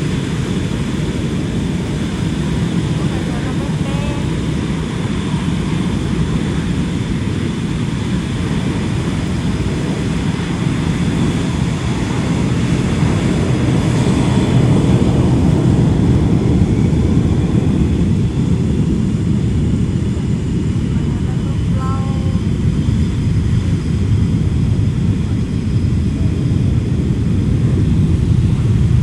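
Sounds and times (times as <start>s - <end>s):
jet engines roaring: 0.0s - 29.0s.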